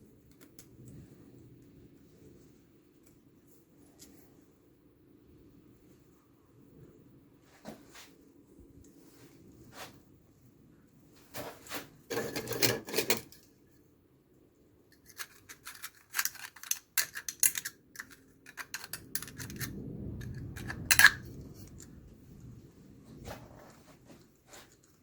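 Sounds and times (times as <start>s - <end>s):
low rumble: 19.2s - 23.9s.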